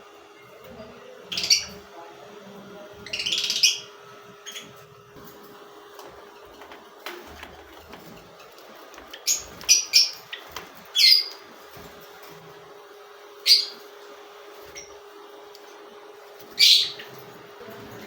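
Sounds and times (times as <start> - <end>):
parrots squawking: 1.3 - 1.8, 3.0 - 4.9, 9.1 - 11.5, 13.4 - 13.9, 16.5 - 17.2.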